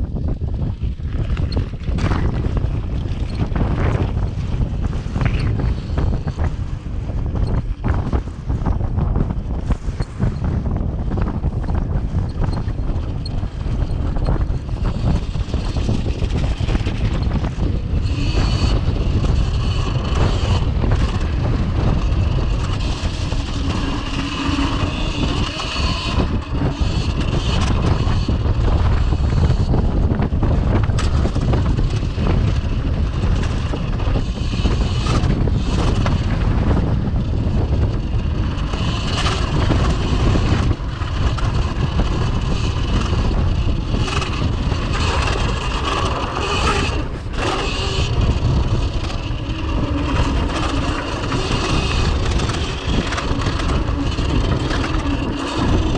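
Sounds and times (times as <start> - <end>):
wind rumbling on microphone: 0.0 - 55.9
electric motor whine: 13.3 - 55.9.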